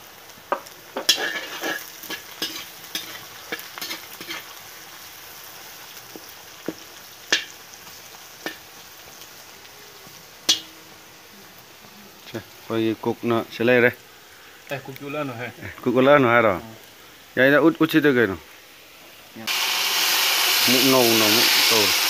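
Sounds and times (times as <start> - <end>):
onions sizzling in oil: 0.0 - 22.0
metal ladle scraping wok: 1.0 - 4.5.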